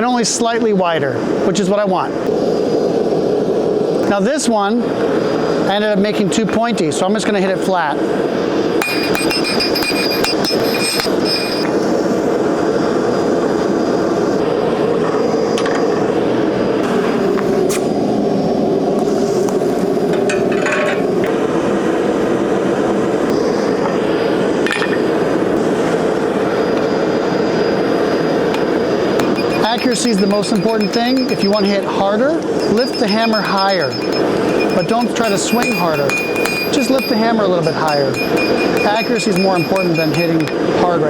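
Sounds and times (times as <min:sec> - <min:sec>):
hammer ringing on anvil: 0:08.8 - 0:11.7, 0:29.2 - 0:40.7.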